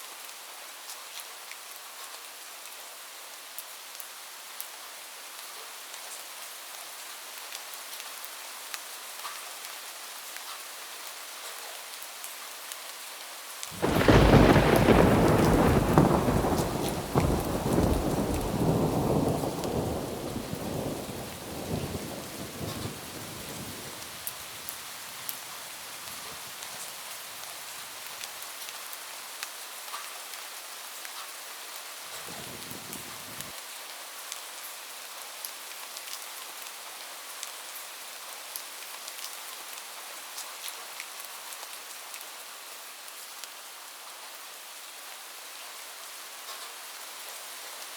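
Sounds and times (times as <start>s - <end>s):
rain pattering: 13.6s - 42.2s
thunder clap rumbling: 13.8s - 24.3s, 32.2s - 33.5s.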